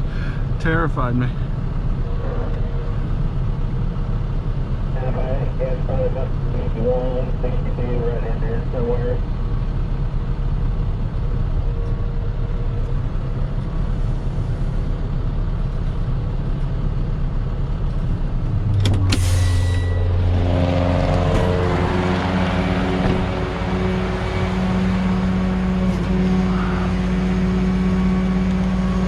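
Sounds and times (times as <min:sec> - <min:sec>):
steady low drone: 0:00.0 - 0:29.0
vehicle engine and road rumble: 0:00.0 - 0:29.0.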